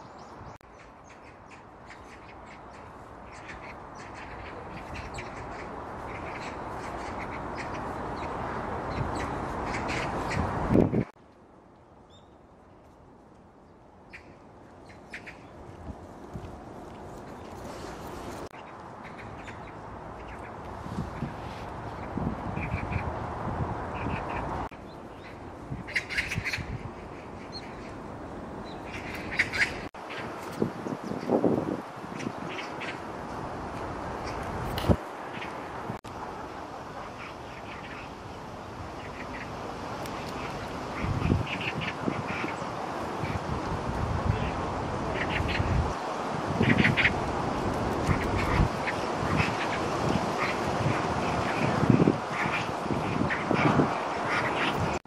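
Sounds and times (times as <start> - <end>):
birds chirping: 0.0 - 11.1, 17.1 - 23.2, 23.9 - 31.4
steady background noise: 0.0 - 55.0.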